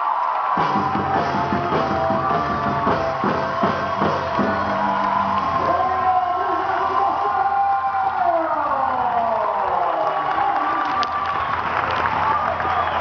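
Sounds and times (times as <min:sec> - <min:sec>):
heavy drum strikes: 0:00.6 - 0:05.6
live band music: 0:00.6 - 0:06.8.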